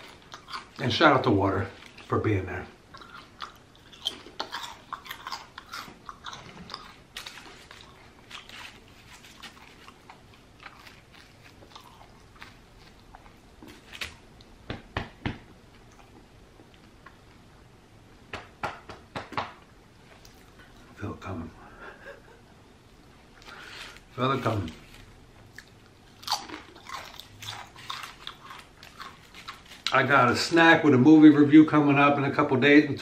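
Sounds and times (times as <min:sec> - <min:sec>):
crunching and chewing chips: 0:00.0 - 0:14.2, 0:23.4 - 0:30.6.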